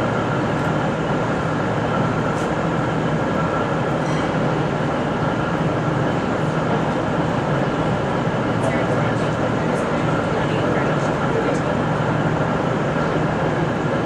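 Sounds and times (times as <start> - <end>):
diesel train hum: 0.0 - 14.0
thin steady whine: 0.0 - 14.0.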